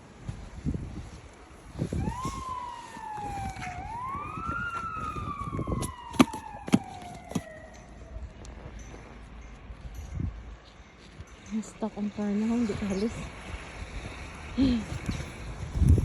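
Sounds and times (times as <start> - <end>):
siren wailing: 1.8 - 8.4.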